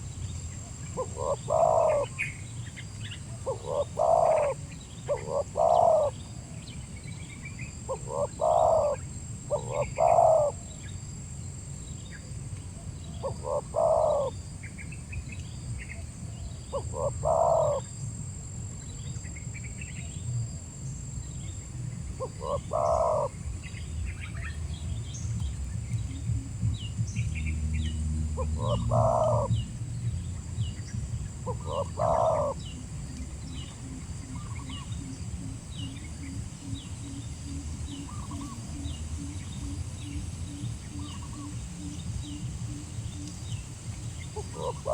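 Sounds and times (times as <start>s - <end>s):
small birds chirping faintly: 0.0s - 44.9s
dove cooing: 0.8s - 2.4s, 3.3s - 6.6s, 7.8s - 10.7s, 13.1s - 14.4s, 16.4s - 17.9s, 22.1s - 44.9s
steady low rumble: 17.9s - 44.9s.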